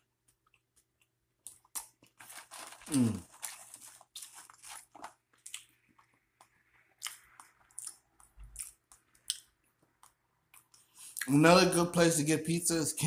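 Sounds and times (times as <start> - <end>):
person chewing food: 0.0 - 11.3
soft mouth and teeth clicks: 5.4 - 11.3.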